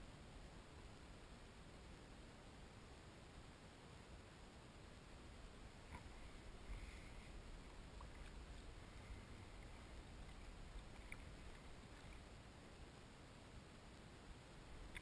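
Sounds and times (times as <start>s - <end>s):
faint low rumble: 0.0s - 15.0s
faint ticks: 5.8s - 12.3s, 14.7s - 15.0s
small water splashes: 5.8s - 12.4s.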